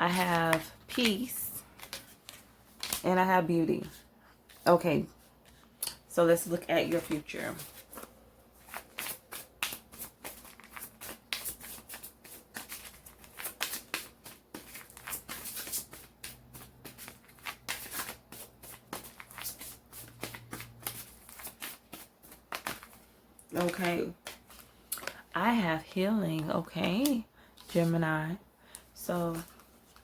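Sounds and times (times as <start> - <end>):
cards being shuffled: 0.1 - 3.0, 6.9 - 25.6.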